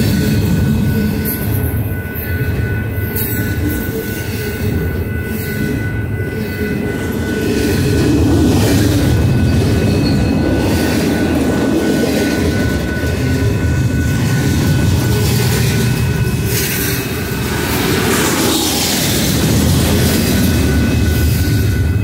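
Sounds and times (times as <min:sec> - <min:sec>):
train rumbling past: 0:00.0 - 0:22.0.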